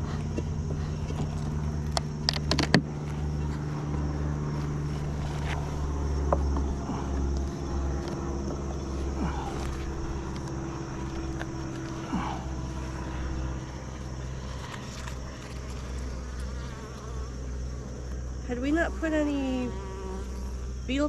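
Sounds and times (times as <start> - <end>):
honeybees buzzing: 0.0 - 21.0
sharp clicks and knocks: 0.3 - 2.9.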